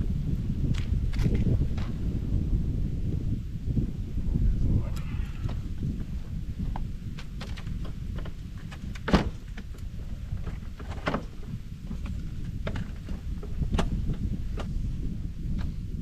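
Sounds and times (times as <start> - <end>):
wind buffeting microphone: 0.0 - 16.0
knocks and clatter: 6.7 - 14.7.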